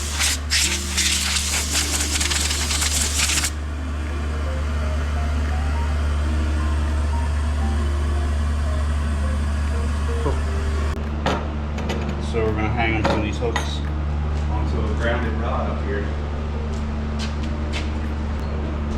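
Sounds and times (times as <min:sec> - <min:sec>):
sandblasting hiss: 0:00.0 - 0:03.6
blasting equipment humming: 0:00.0 - 0:11.8.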